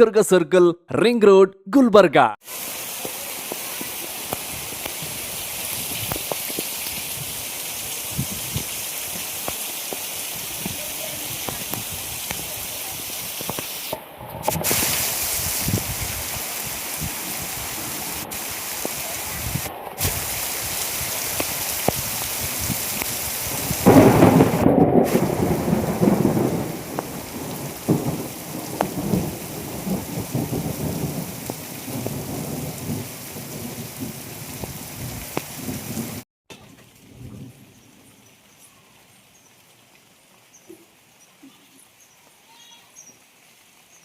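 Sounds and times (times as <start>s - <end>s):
heavy rain hissing: 2.4s - 36.2s.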